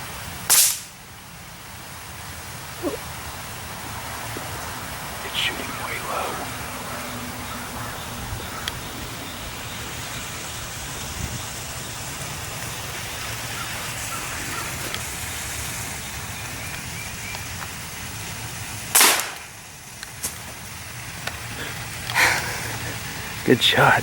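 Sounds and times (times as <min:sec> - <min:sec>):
steady outdoor hiss: 0:00.0 - 0:24.0
suppressed rifle shot: 0:00.5 - 0:00.9, 0:18.9 - 0:19.5.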